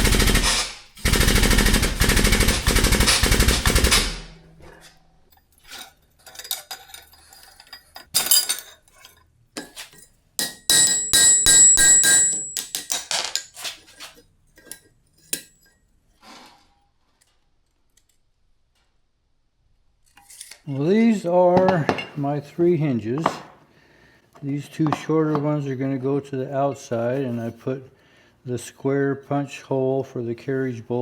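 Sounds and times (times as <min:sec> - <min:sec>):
mechanical hammering on steel: 0:00.0 - 0:04.6, 0:10.4 - 0:13.0
steel pieces clinking: 0:04.7 - 0:15.8
ringing metal strikes: 0:10.4 - 0:12.9.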